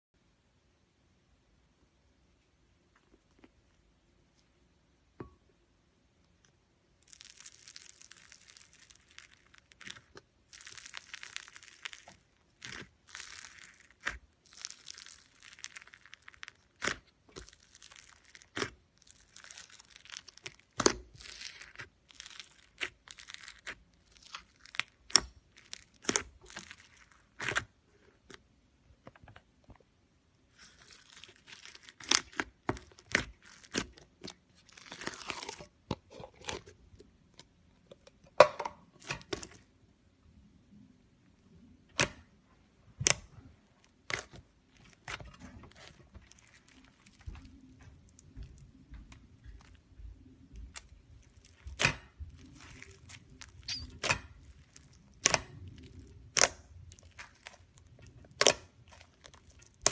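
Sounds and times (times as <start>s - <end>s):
slime crackling and popping: 6.4s - 28.4s, 30.5s - 36.7s, 43.0s - 59.9s.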